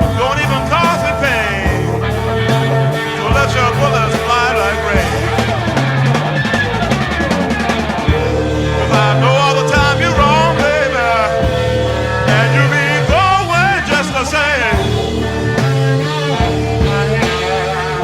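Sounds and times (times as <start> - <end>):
bass guitar: 0.0 - 18.0
drum kit: 0.0 - 18.0
electric guitar lead: 0.0 - 18.0.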